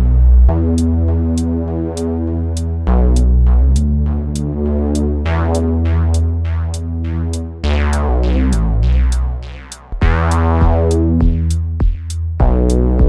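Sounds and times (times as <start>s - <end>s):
gritty synthesizer bass chords: 0.0s - 13.0s
drum machine hi-hats ticking: 0.8s - 13.0s
punchy drum hits: 10.0s - 12.6s.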